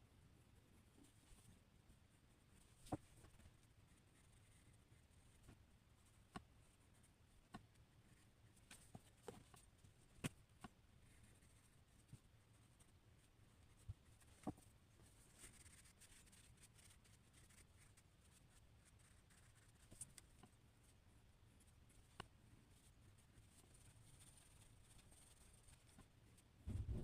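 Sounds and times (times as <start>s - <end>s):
pencil scratching on paper: 3.9s - 5.2s, 11.1s - 11.7s, 15.3s - 20.0s.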